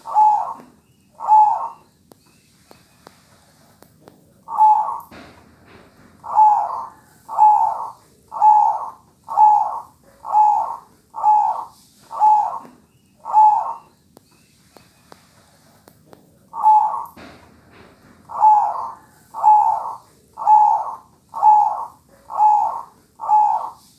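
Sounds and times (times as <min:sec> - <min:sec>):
dove cooing: 0:00.0 - 0:01.9, 0:04.5 - 0:14.0, 0:16.5 - 0:23.9.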